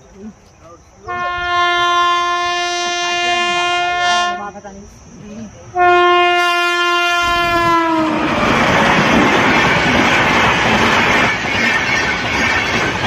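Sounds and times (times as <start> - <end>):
train rushing past: 1.0 - 13.0
locomotive horn: 1.1 - 4.6, 5.8 - 8.4.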